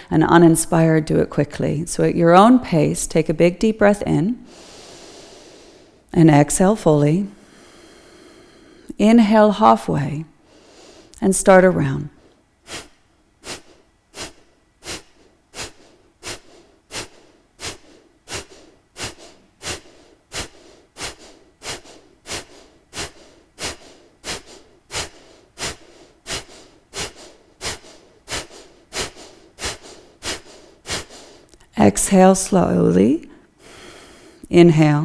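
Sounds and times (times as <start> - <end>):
forceful nasal exhalations: 12.2 - 31.6.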